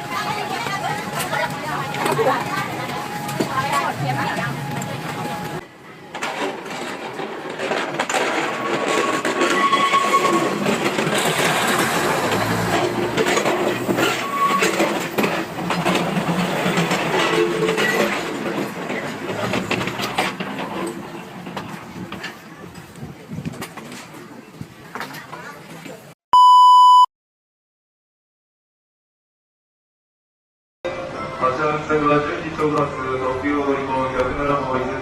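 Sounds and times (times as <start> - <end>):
train wheels clattering on rails: 6.1 - 24.3.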